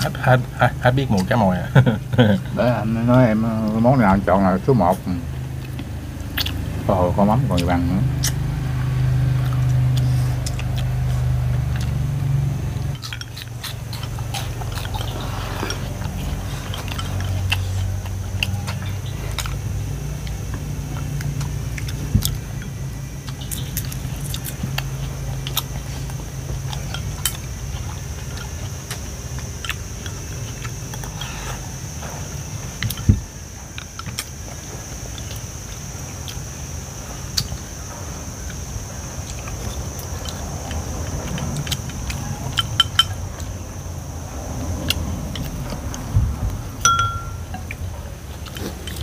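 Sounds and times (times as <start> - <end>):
people chewing and biting: 0.0 - 49.0
steady low hum: 0.0 - 49.0
chopsticks and bowls clicking: 46.8 - 47.8.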